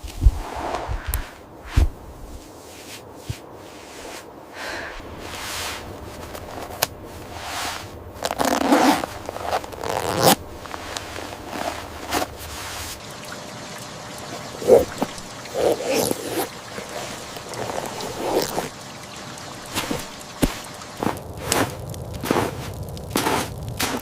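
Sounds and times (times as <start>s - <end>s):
clothing rustling: 0.0s - 13.1s, 14.4s - 24.0s
zipper being pulled: 7.4s - 13.0s, 14.6s - 18.8s.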